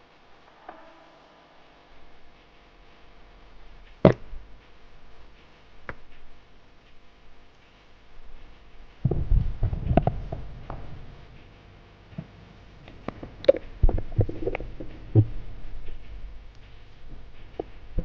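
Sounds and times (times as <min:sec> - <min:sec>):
muffled underwater thuds and rumbling: 0:09.0 - 0:11.4, 0:13.0 - 0:18.0.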